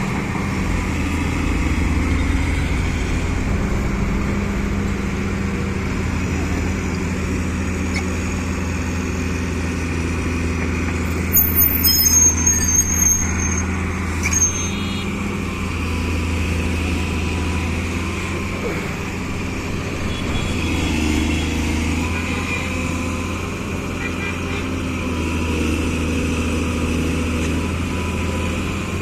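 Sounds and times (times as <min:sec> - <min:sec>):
diesel engine droning: 0:00.0 - 0:29.0
high-pitched metallic squeals: 0:11.2 - 0:15.2.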